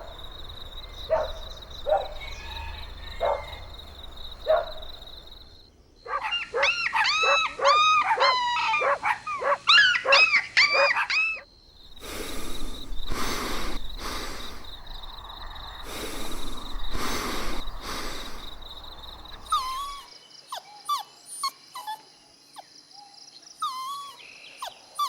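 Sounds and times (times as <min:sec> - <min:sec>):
puppy yipping: 0:06.1 - 0:11.4, 0:19.5 - 0:22.0, 0:23.6 - 0:25.0.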